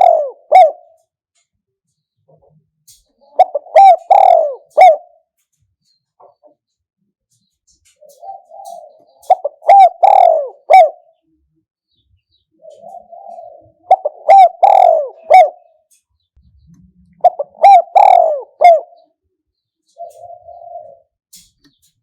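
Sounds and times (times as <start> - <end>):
dove cooing: 0.0 - 1.1, 3.1 - 5.3, 8.0 - 11.4, 12.5 - 15.9, 16.7 - 19.3, 19.9 - 21.4.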